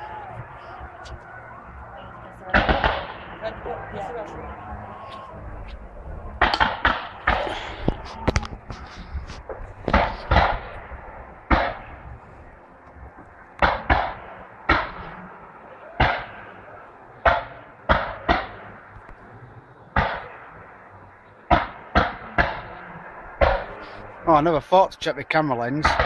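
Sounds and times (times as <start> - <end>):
firework bangs echoing: 2.5 - 3.6, 6.3 - 8.0, 9.5 - 12.2, 13.5 - 16.6, 17.2 - 18.9, 19.9 - 20.8, 21.4 - 23.8, 25.8 - 26.0.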